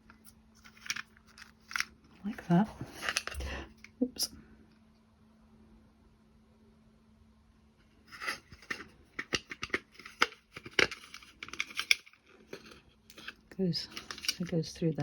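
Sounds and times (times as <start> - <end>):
scraping and rustling: 7.9 - 14.7.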